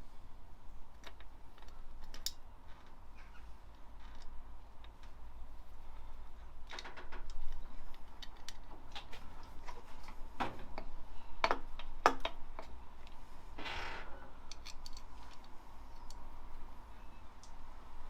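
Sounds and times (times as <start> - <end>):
metal parts and tools clicking: 1.0 - 2.9, 6.6 - 9.5, 14.4 - 16.3.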